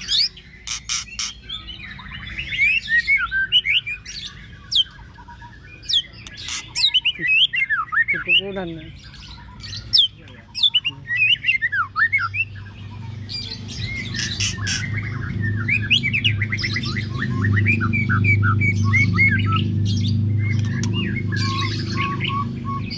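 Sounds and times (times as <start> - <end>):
bird singing whistled notes: 0.0 - 12.9, 13.5 - 22.9.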